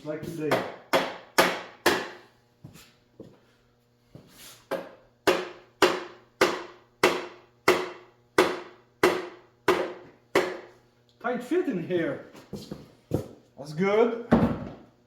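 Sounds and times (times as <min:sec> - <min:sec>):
rubber mallet hammering: 0:00.5 - 0:02.2, 0:04.7 - 0:10.7.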